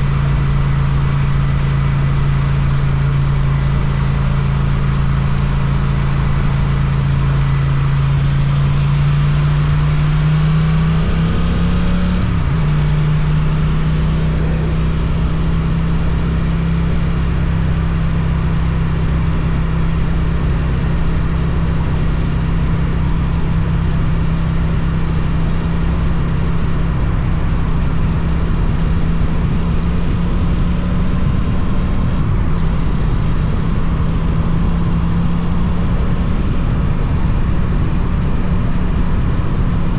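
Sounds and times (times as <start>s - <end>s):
motorcycle engine revving: 0.0s - 19.8s.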